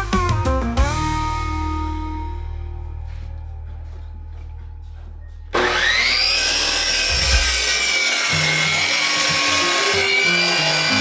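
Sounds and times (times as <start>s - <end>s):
soft background music: 0.0s - 5.6s
power tool whining on wood: 5.5s - 11.0s.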